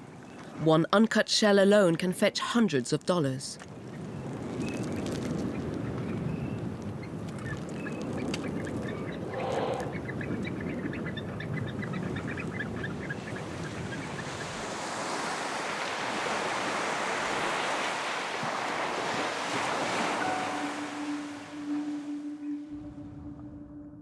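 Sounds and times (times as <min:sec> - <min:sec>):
waves breaking on shore: 0:03.6 - 0:22.7
birds calling: 0:05.5 - 0:15.8.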